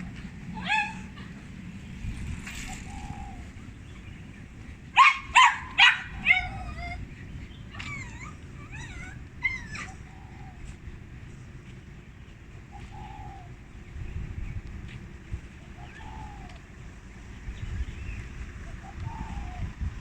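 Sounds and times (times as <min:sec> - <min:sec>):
dog yelping barks: 0:00.0 - 0:01.5, 0:05.0 - 0:07.1, 0:07.7 - 0:10.2
wind on microphone: 0:00.0 - 0:20.0
faint dog yips: 0:00.5 - 0:01.5, 0:05.0 - 0:07.1, 0:07.7 - 0:10.6.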